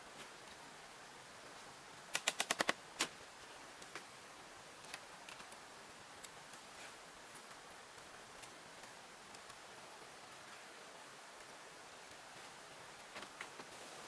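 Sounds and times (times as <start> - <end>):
faint ticks: 6.2 - 9.6.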